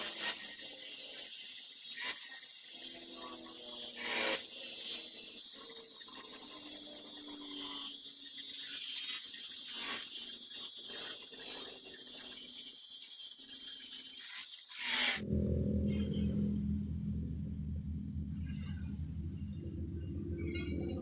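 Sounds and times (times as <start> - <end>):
welding arc sizzle: 0.0 - 15.2.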